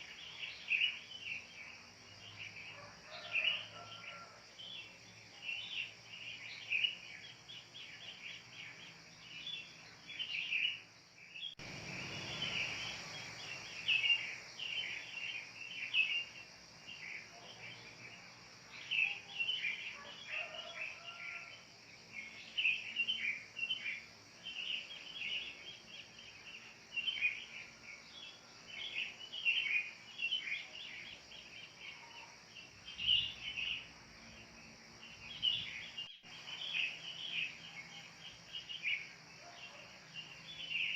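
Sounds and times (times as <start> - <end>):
steady high hiss: 0.0 - 40.9
wild birds chirping: 0.0 - 40.9.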